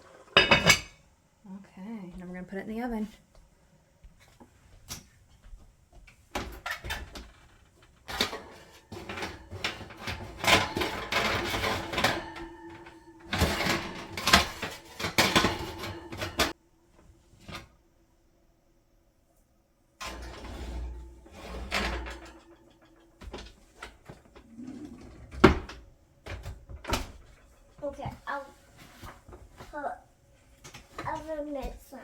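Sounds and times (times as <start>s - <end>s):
metal knocks and scrapes of pot and oven: 0.1s - 1.1s, 8.1s - 16.6s, 20.0s - 29.6s.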